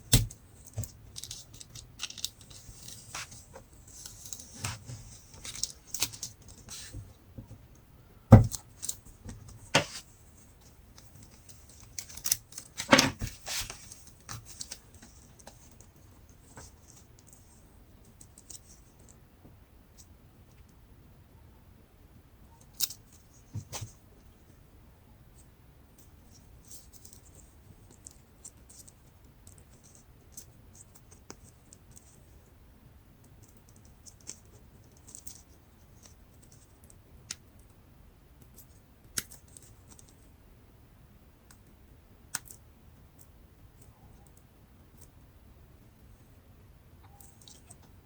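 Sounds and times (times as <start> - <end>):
laptop parts clicking and scratching: 0.1 - 7.0, 33.2 - 37.8, 47.0 - 48.0.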